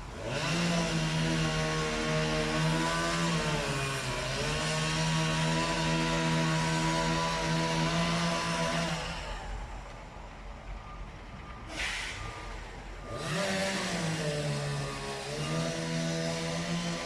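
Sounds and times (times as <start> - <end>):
short hiss: 11.7 - 12.6
engine running fast: 11.7 - 17.0.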